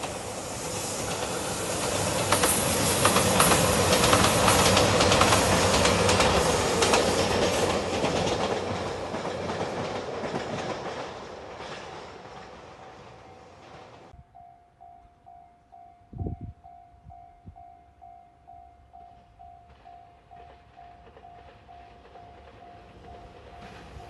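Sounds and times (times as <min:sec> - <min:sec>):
passenger train passing: 0:00.0 - 0:24.0
wheels clattering over rail joints: 0:01.0 - 0:14.1.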